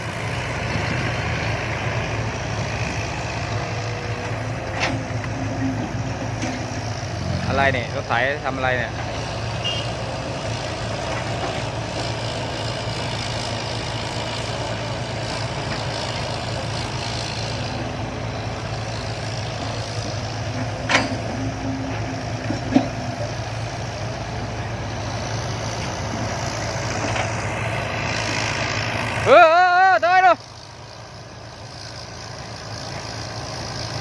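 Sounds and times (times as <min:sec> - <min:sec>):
diesel machinery humming: 0:00.0 - 0:34.0.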